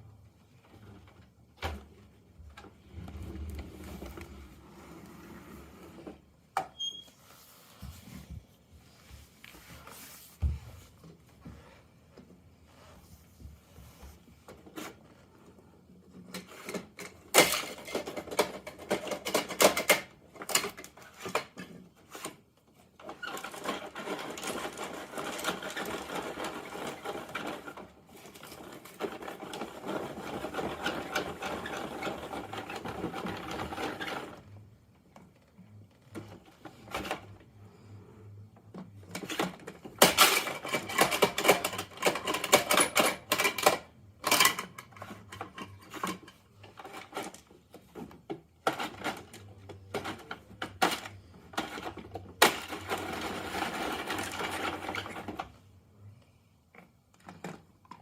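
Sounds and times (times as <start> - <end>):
plastic toy rattling and clicking: 16.2 - 21.8, 23.0 - 34.4, 39.0 - 55.6
scattered clicks and knocks: 39.1 - 53.2.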